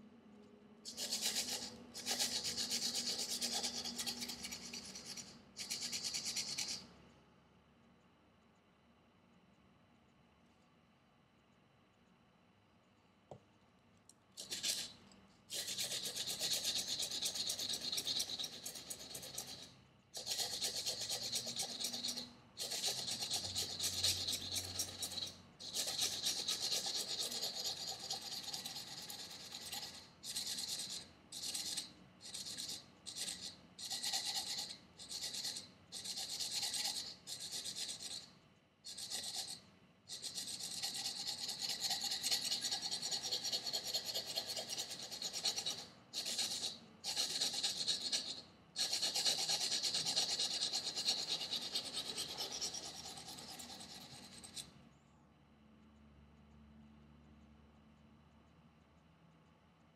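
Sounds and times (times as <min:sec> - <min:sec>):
knife scraping on sandpaper: 0:00.9 - 0:06.8, 0:14.4 - 0:38.3, 0:38.9 - 0:54.6.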